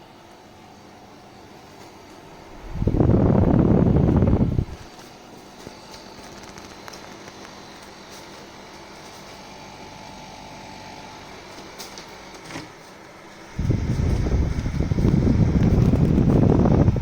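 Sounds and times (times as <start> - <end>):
dehumidifier humming: 0.0 - 17.0
loud rushing noise: 2.3 - 4.8.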